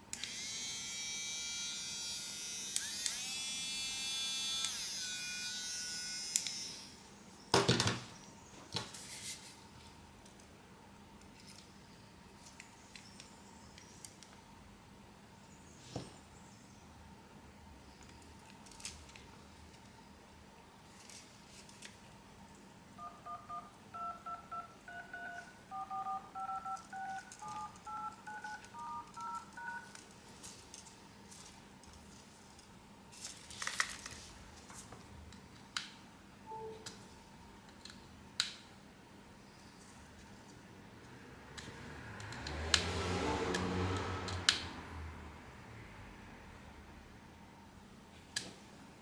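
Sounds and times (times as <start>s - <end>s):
small electric motor whining: 0.2s - 7.0s
phone keypad touch-tones: 23.0s - 29.9s, 36.5s - 36.9s.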